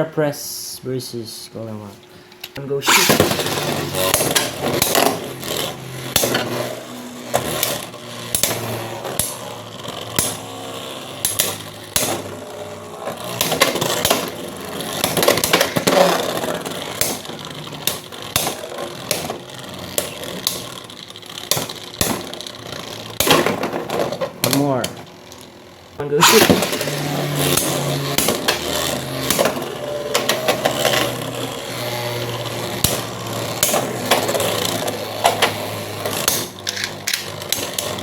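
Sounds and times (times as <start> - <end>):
spinning tops whirring: 2.8 - 38.0
spinning tops clacking together: 2.9 - 24.6, 26.2 - 31.6, 32.2 - 38.0.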